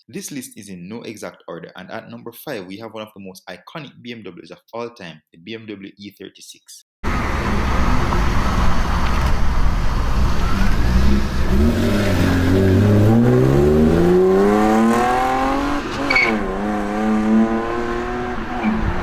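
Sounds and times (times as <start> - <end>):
car engine accelerating: 7.0 - 19.0
high chirp at gear shift: 16.0 - 16.4.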